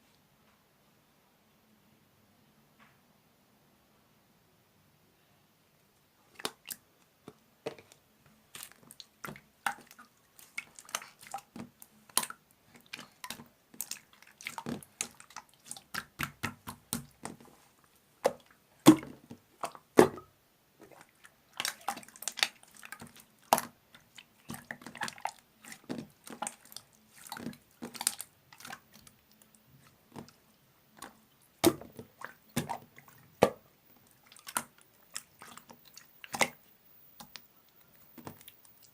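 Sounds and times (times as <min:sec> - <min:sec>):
slime squished by hand: 0:07.7 - 0:17.6, 0:18.2 - 0:38.9.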